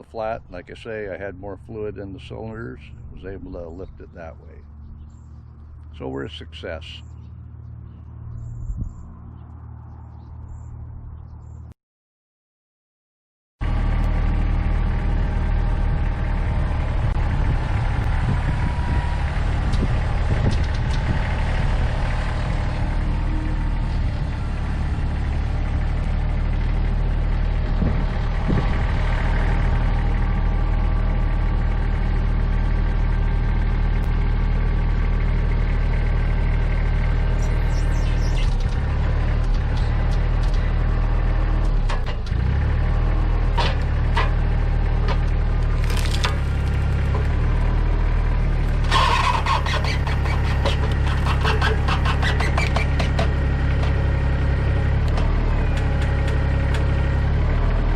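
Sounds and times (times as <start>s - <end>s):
tractor engine running: 0.0s - 10.7s, 13.6s - 57.9s
wood cracking and splintering: 45.6s - 47.4s.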